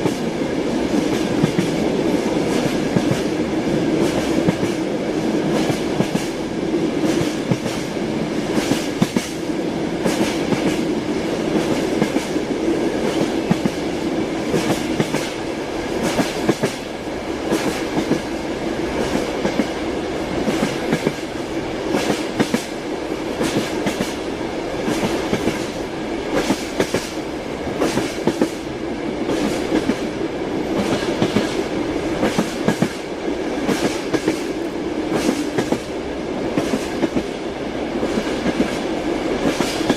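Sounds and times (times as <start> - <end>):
rolling hum of moving train: 0.0 - 39.9
train wheels clicking over rail joints: 0.9 - 6.4, 7.0 - 9.4, 10.0 - 28.6, 29.2 - 30.1, 30.7 - 37.3, 38.0 - 39.9.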